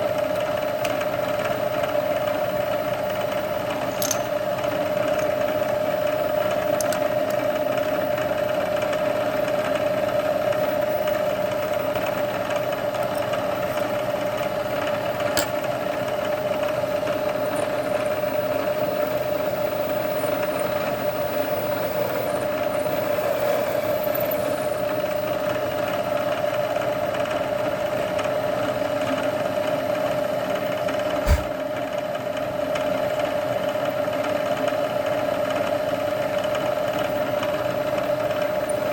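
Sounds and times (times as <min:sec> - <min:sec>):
sharp knock: 0:31.2 - 0:31.5.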